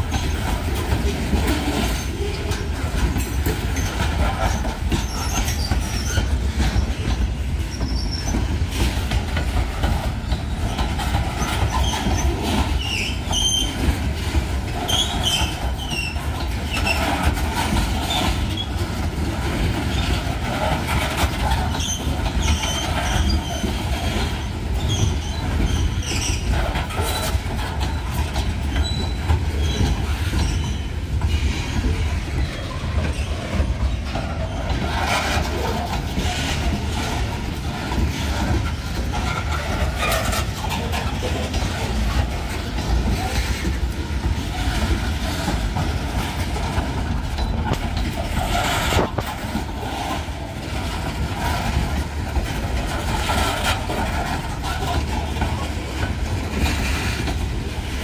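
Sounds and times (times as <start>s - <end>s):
steel wheels rumbling on rail: 0.0s - 58.0s
wheels clicking over rail joints: 0.0s - 58.0s
high wheel squeals: 10.3s - 18.8s, 21.4s - 35.3s.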